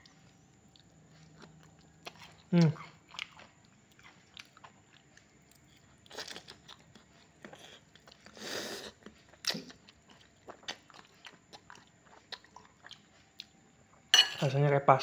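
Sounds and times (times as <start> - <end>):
chewing noodles: 0.0 - 14.0
wet mouth clicks: 7.5 - 9.8.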